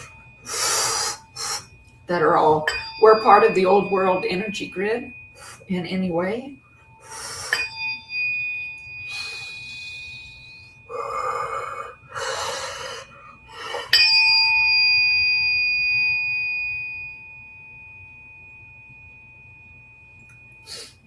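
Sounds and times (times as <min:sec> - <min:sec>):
metal bell ringing: 0:00.0 - 0:12.4, 0:13.3 - 0:21.0.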